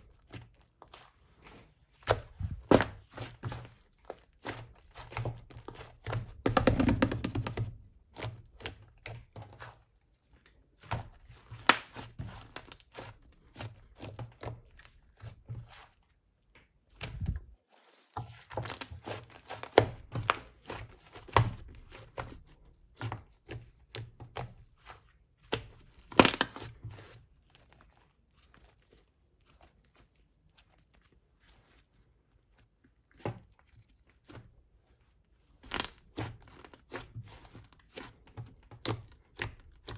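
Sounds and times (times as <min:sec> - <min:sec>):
slime crackling and popping: 0:26.0 - 0:26.7, 0:35.6 - 0:37.2.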